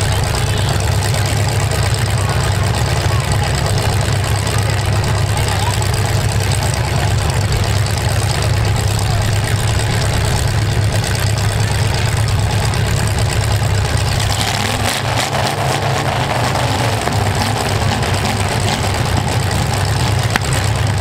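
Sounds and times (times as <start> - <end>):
car engines idling: 0.0 - 21.0.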